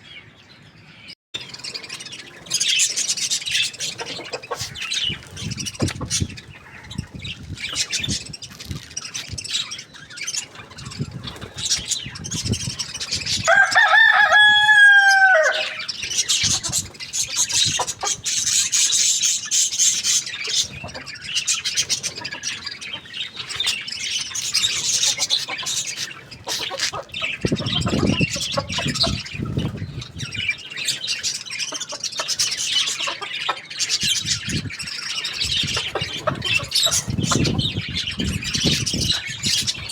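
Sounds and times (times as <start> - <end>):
small birds chirping: 0.0 - 39.9
hens clucking: 3.5 - 6.9, 20.4 - 29.8, 31.6 - 34.1, 35.2 - 39.8
rooster crowing: 13.4 - 15.9.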